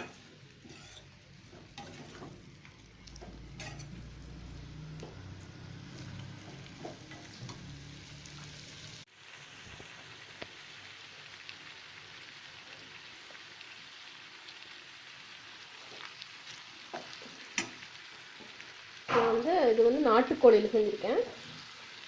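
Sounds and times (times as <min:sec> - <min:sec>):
chicken sizzling in oil: 0:00.0 - 0:22.0.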